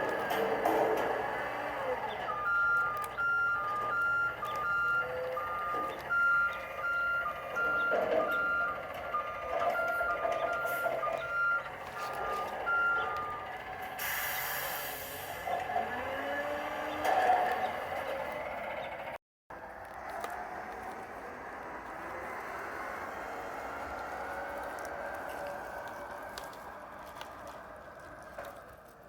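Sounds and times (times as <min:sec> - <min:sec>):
reversing alarm beeping: 0:00.0 - 0:17.7
short hiss: 0:14.0 - 0:15.4.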